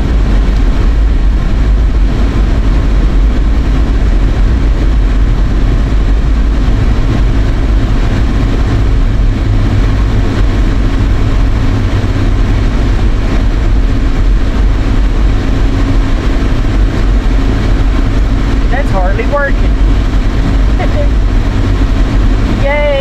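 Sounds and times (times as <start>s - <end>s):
road and engine rumble in car: 0.0s - 23.0s.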